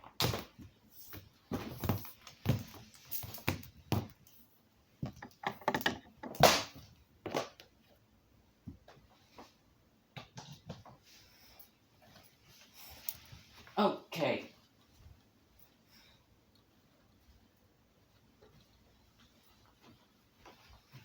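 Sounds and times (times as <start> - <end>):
hard objects knocking and clunking: 5.0 - 6.6.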